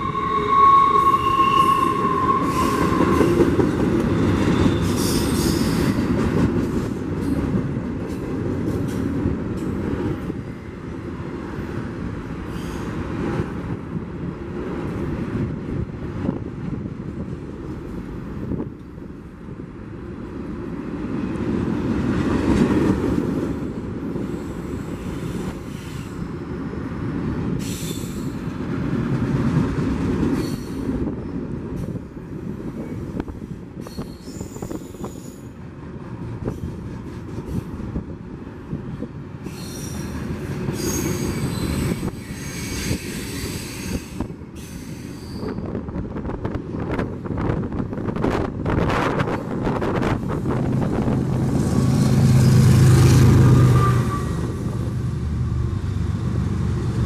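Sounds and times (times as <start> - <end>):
high-pitched wheel squeals: 0.0 - 3.5, 40.7 - 45.7
train wheels rumbling on rails: 0.0 - 57.0.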